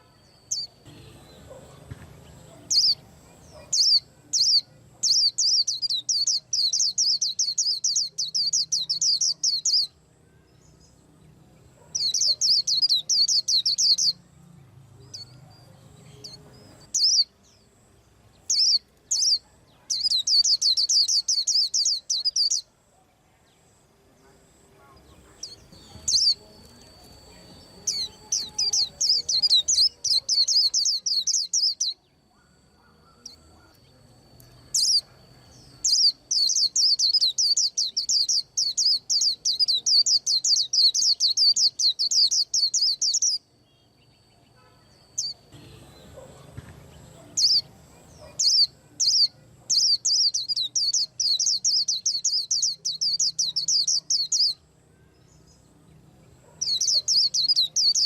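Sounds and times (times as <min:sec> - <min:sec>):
bird twittering rapidly: 0:02.4 - 0:10.0, 0:11.8 - 0:14.2, 0:16.2 - 0:17.4, 0:18.4 - 0:22.7, 0:25.4 - 0:33.9, 0:34.7 - 0:43.5, 0:47.2 - 0:54.6, 0:56.4 - 0:58.0
single bird chirps: 0:18.5 - 0:22.7.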